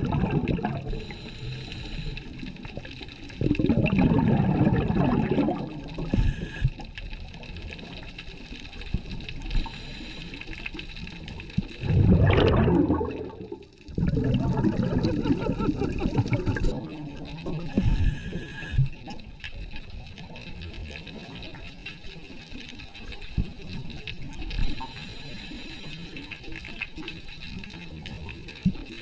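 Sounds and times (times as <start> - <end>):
scuba exhaust bubbles underwater: 0.0 - 29.0
steady hiss: 0.8 - 3.3, 5.8 - 6.9, 7.8 - 11.3, 17.6 - 19.0, 24.3 - 27.0.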